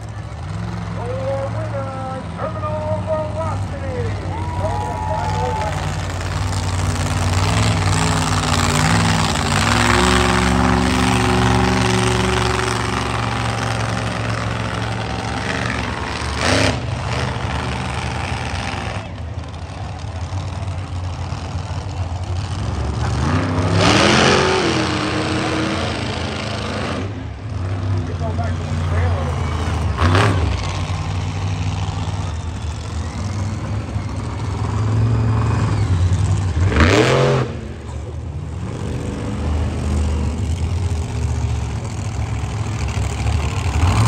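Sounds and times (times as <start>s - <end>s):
monster truck engine revving: 0.0s - 44.0s.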